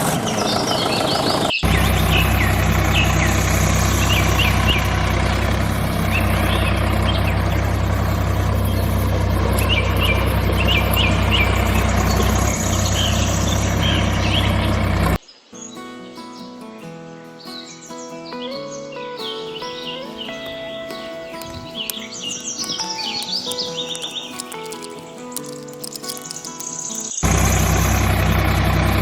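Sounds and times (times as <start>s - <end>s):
motor humming: 0.0s - 15.2s, 22.6s - 29.0s
birds chirping: 0.0s - 29.0s.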